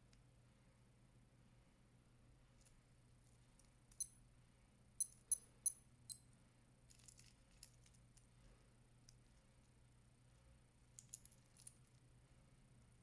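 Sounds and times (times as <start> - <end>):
metallic watch clicks: 4.0 - 4.2, 5.0 - 6.2
metal bracelet links jingling: 5.0 - 6.2.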